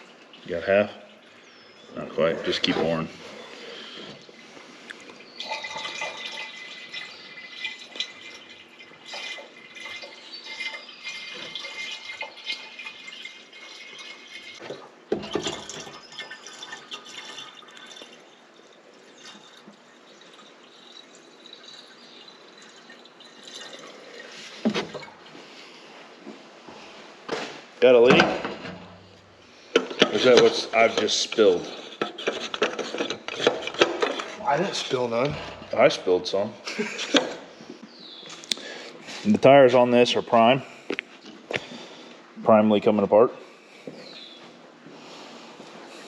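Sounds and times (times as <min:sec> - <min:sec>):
liquid pouring from jug: 0:00.0 - 0:25.4, 0:29.8 - 0:36.1.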